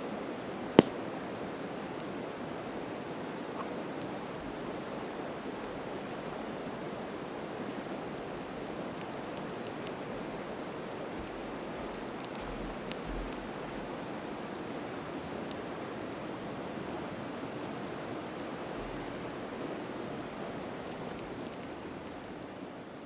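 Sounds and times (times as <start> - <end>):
campfire pops and crackles: 0.8 - 2.1, 7.8 - 14.7.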